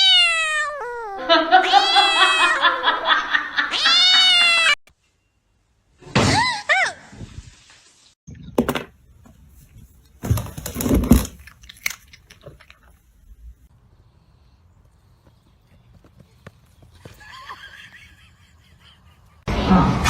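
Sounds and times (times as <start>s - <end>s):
cat meowing: 0.0s - 2.6s, 3.7s - 4.8s
knocks and rustling: 8.6s - 11.5s.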